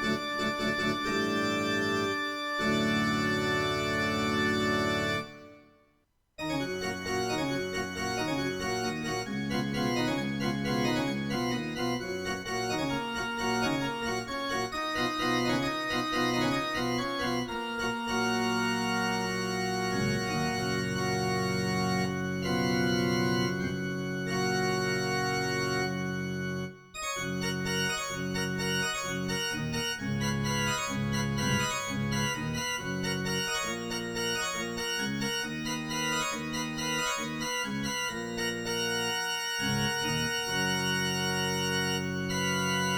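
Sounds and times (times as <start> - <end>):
electronic keyboard music: 0.0 - 5.6, 6.4 - 42.9.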